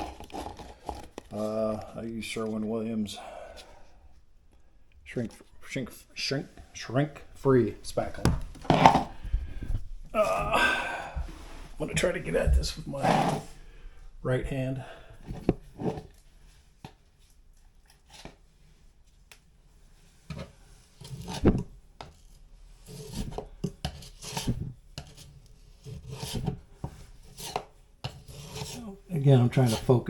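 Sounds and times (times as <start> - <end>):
putty knife scraping and tapping: 22.0 - 28.8.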